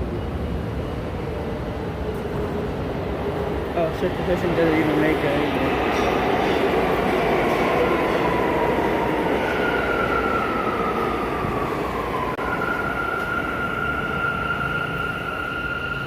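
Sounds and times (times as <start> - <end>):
subway train rumble: 0.0 - 16.0.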